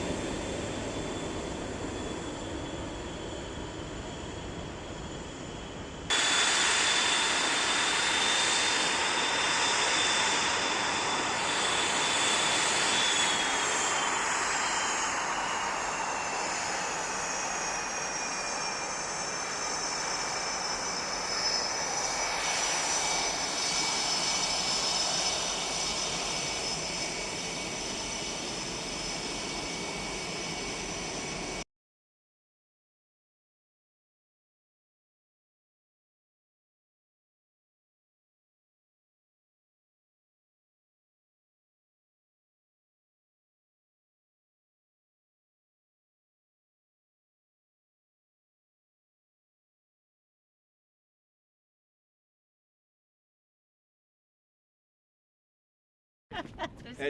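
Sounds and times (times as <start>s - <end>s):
jet engines whining: 0.0s - 31.6s.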